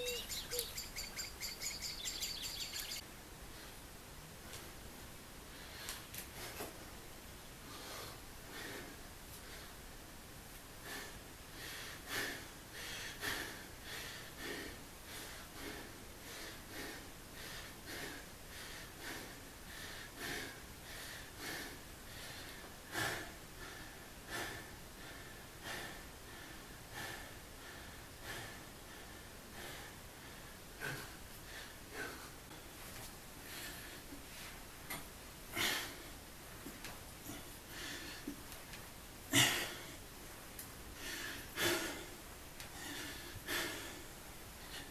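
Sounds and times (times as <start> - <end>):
person breathing hard: 7.6 - 9.8, 10.8 - 32.8, 33.4 - 34.6, 35.5 - 36.2, 37.2 - 38.4, 40.9 - 44.9.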